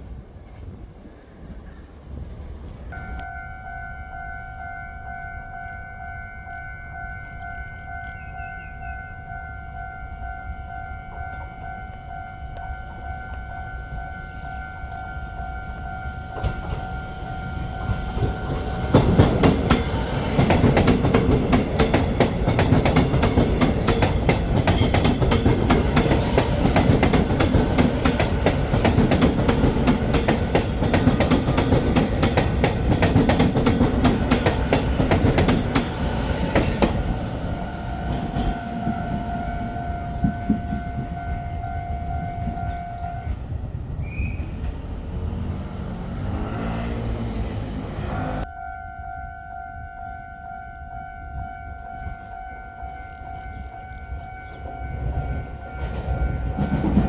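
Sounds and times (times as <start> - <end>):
train wheels clattering: 16.2 - 42.8, 54.4 - 57.0.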